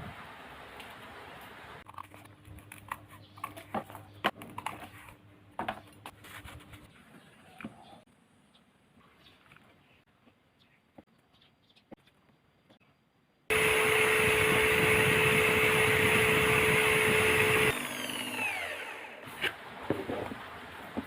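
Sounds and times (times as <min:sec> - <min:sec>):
small electric motor whining: 0:13.5 - 0:19.4.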